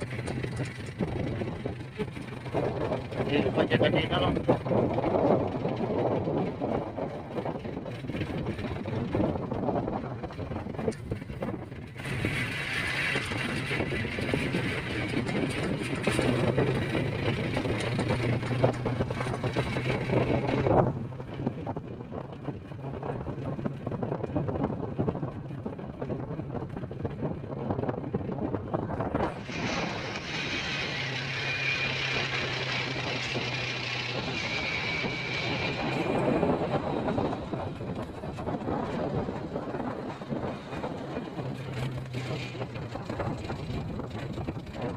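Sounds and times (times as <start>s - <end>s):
road and wind noise: 0.0s - 44.9s
vehicle engine running: 0.0s - 44.9s.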